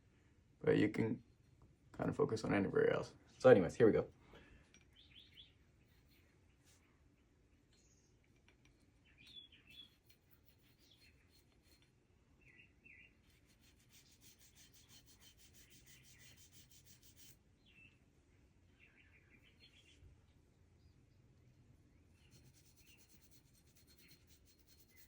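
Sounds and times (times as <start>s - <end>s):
birds chirping: 3.7s - 11.4s, 12.4s - 13.2s, 17.6s - 23.3s
toothbrush scrubbing metal: 9.4s - 12.0s, 13.2s - 17.4s, 22.2s - 25.0s.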